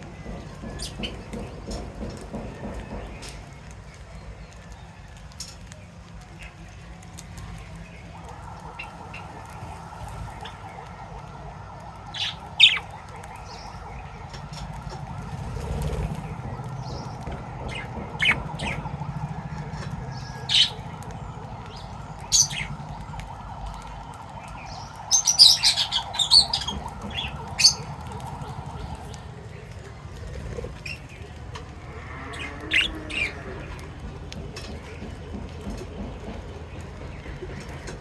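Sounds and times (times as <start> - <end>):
steady background hum: 4.8 - 38.0
pet birds chirping and squawking: 12.1 - 23.8, 24.6 - 35.8.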